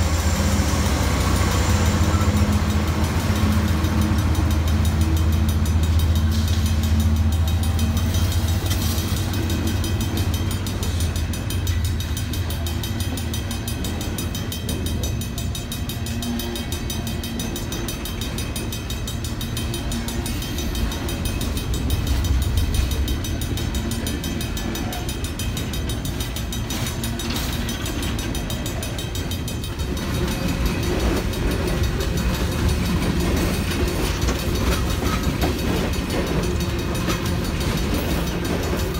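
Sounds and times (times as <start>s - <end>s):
diesel locomotive engine drone: 0.0s - 38.9s
railcars rumbling on rails: 0.0s - 38.9s.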